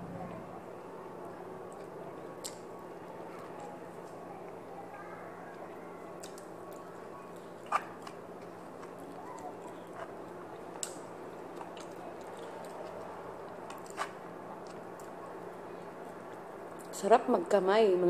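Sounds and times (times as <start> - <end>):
faint steady hum: 0.0 - 18.0
chewing and mouth noises: 5.5 - 17.0.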